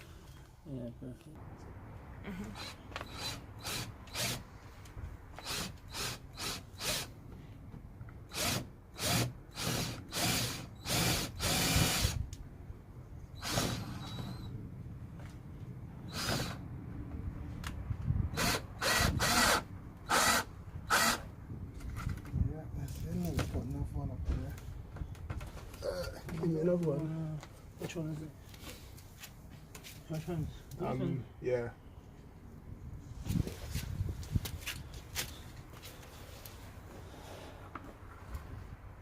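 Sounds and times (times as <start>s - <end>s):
power drill bursts: 2.6s - 4.4s, 5.4s - 7.1s, 8.3s - 12.2s, 13.4s - 14.5s, 16.1s - 16.6s, 18.4s - 21.3s.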